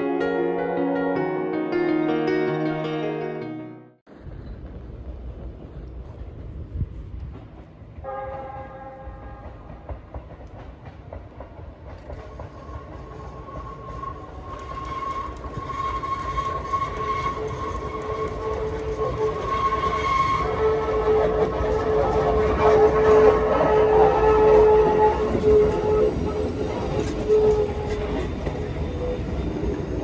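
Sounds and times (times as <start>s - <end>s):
train rumble: 4.1s - 30.0s
train horn blast: 8.0s - 9.7s, 14.8s - 28.1s.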